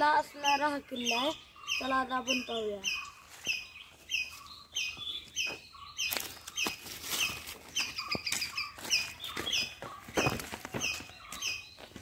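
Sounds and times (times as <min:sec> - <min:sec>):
small bird high chirp: 0:00.0 - 0:11.9
footsteps on dry leaf litter: 0:03.1 - 0:12.0.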